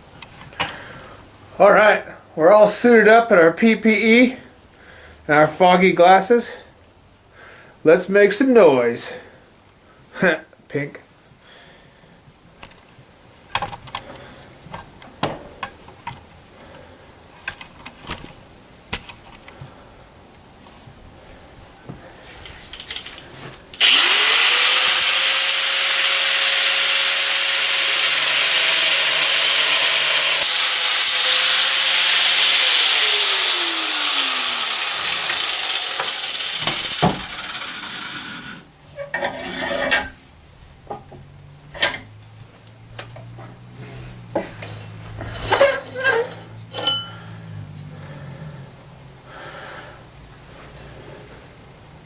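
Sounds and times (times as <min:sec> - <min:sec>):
angle grinder cutting steel: 0:23.8 - 0:38.6
metal clinks and knocks: 0:44.6 - 0:47.2.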